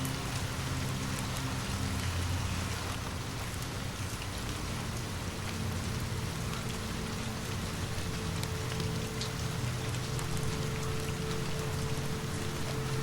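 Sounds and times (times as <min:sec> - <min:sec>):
low steady hum: 0:00.0 - 0:13.0
rain hissing: 0:00.0 - 0:13.0
raindrops ticking: 0:00.0 - 0:13.0.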